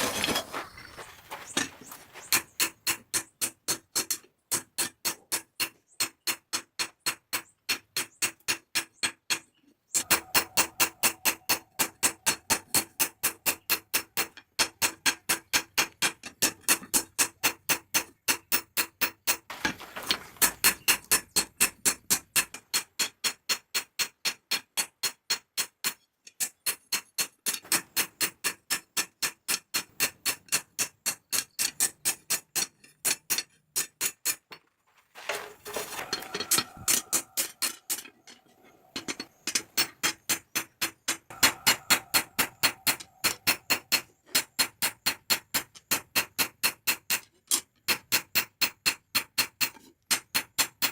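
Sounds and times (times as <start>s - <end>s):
hammer striking hot steel: 41.3s - 43.9s.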